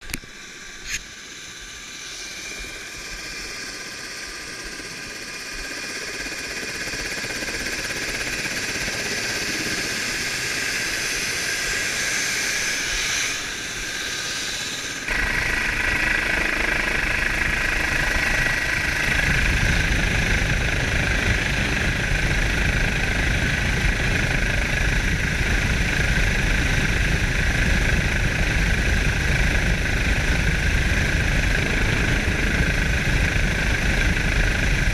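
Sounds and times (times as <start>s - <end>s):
engine running: 0.0s - 34.9s
heavy low rumble: 15.1s - 34.9s.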